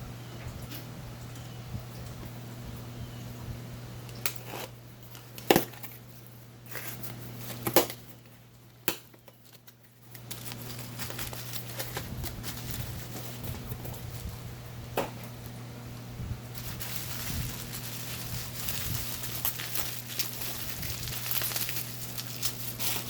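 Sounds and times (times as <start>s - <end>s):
steady low hum: 0.0s - 23.0s
packaging crinkling and rustling: 4.3s - 15.6s, 16.5s - 23.0s.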